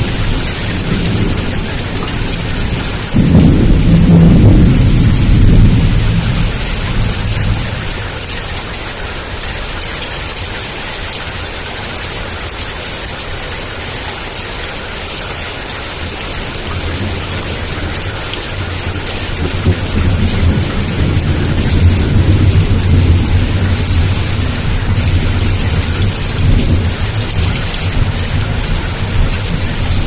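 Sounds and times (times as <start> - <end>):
thunder rumble: 0.0 - 9.4, 15.8 - 30.0
heavy rain pouring: 0.0 - 30.0.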